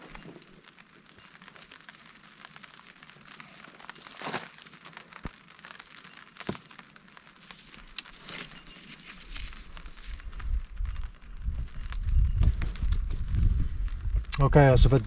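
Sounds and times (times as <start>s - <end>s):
tarp rustling and crinkling: 0.0s - 15.0s
low rumble: 10.1s - 15.0s.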